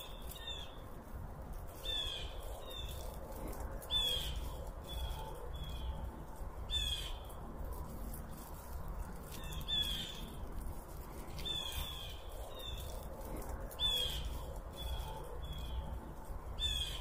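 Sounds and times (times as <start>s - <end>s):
steady low rumble: 0.0s - 17.0s
birds harsh calls: 1.7s - 7.4s, 9.1s - 17.0s.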